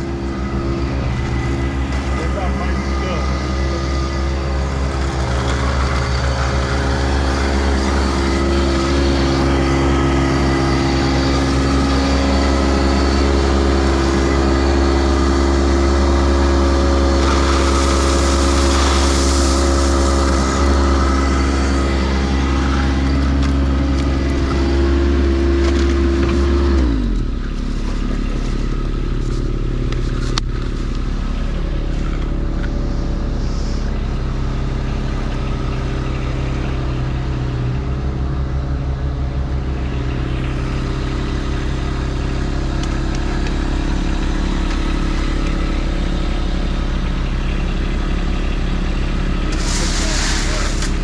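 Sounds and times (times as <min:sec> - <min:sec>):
heavy equipment engine: 0:00.0 - 0:51.0
stone and dirt scraping: 0:16.3 - 0:26.6.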